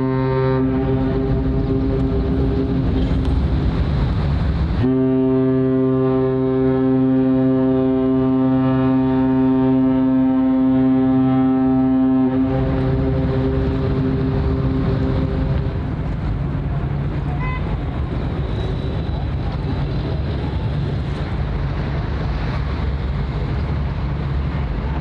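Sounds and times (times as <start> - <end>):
ship horn blast: 0.0 - 3.8, 4.7 - 16.0
wind noise: 0.0 - 5.0, 12.1 - 25.0.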